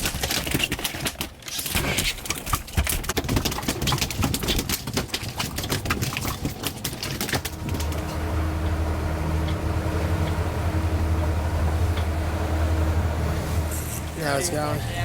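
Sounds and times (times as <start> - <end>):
rapid clicking and knocking: 0.0 - 8.8
low boat engine drone: 5.3 - 15.0.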